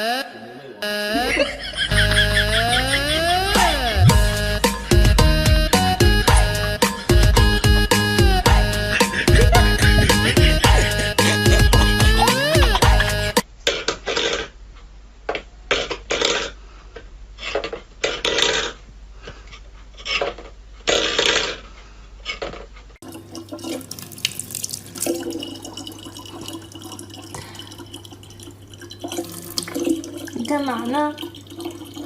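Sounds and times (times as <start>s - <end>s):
low hum: 1.2s - 13.4s
tap running: 9.3s - 13.4s
water splashing: 23.0s - 32.0s.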